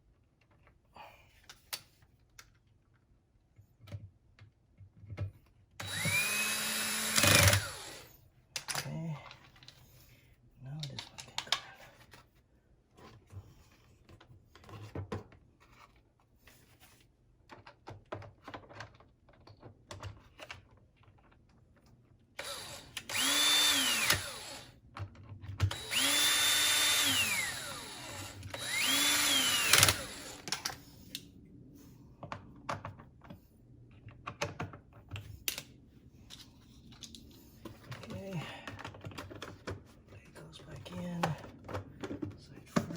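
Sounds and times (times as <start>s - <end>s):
cordless drill spinning: 5.8s - 8.2s, 22.4s - 24.8s, 25.6s - 30.8s.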